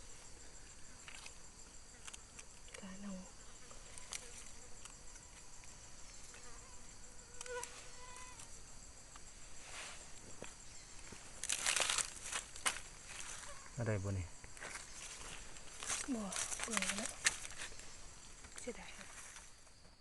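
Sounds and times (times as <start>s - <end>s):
insects buzzing: 0.0s - 20.0s
rustling: 9.1s - 13.7s.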